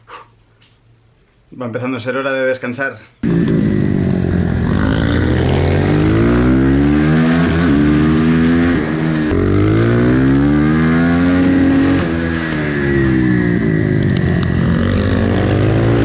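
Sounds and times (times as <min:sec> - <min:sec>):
motorcycle engine accelerating: 0:03.2 - 0:16.0.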